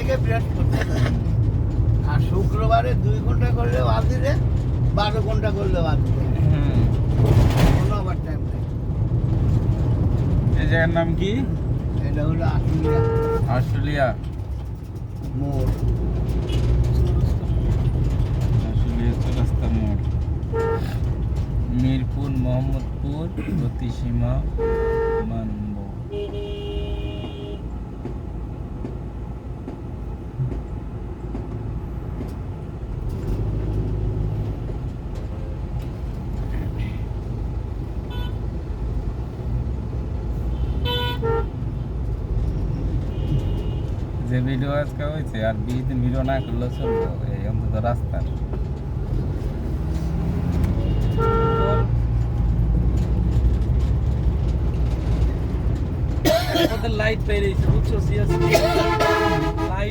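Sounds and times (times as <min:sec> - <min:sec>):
low rumble of road traffic: 0:00.0 - 0:59.9
vehicle horn: 0:12.8 - 0:13.5, 0:20.5 - 0:21.0, 0:24.6 - 0:25.4, 0:26.1 - 0:27.7, 0:38.1 - 0:38.4, 0:40.5 - 0:41.6, 0:43.1 - 0:43.9, 0:46.4 - 0:47.2, 0:50.8 - 0:52.0, 0:58.2 - 0:59.9.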